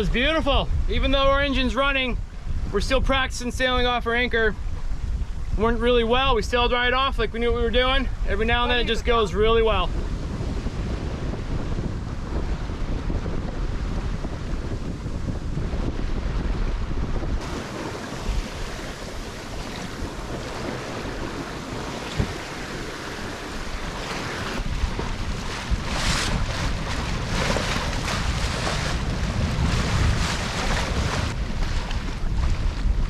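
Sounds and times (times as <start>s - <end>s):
water rushing along boat hull: 0.0s - 33.0s
wind buffeting microphone: 0.0s - 33.0s.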